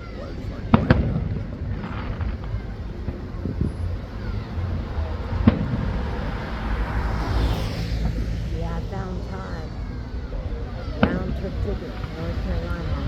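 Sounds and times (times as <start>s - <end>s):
road traffic: 0.0s - 13.0s
wind: 0.0s - 13.0s
firework bang: 0.6s - 9.0s.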